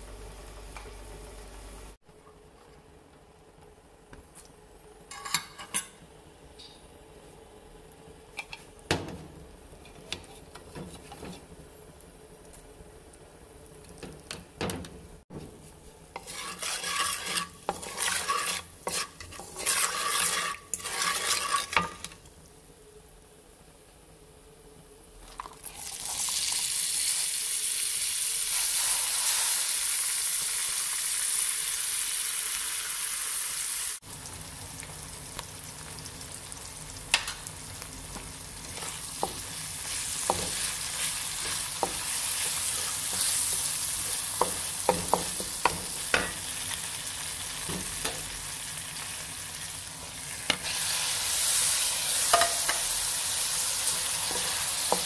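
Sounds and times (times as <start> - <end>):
spices sizzling in hot oil: 7.8 - 22.8, 25.2 - 55.0
spatula knocking and scraping pan: 8.4 - 11.5, 14.0 - 22.2, 38.2 - 46.4, 52.3 - 52.9, 54.2 - 55.0
onions sizzling in oil: 15.4 - 22.8, 25.6 - 55.0.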